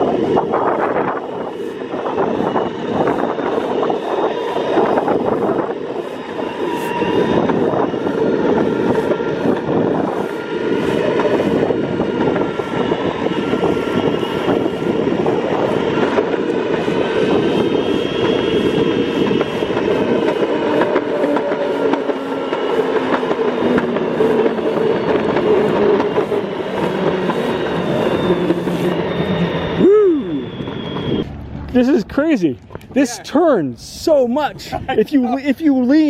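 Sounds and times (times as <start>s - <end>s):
longboard wheels rolling on pavement: 7.0s - 29.7s, 30.4s - 34.3s.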